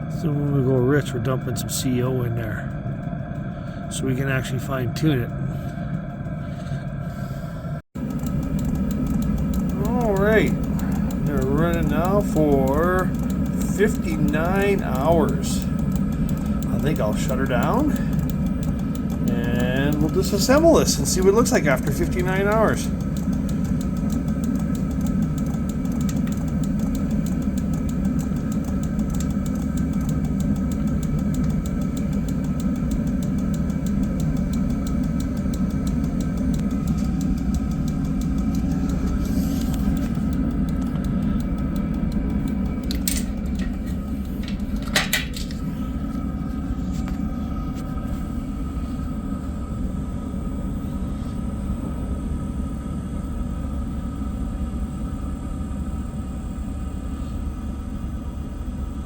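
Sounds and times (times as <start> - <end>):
diesel heater rumble: 0.0 - 48.9
sharp clicks: 8.0 - 47.8.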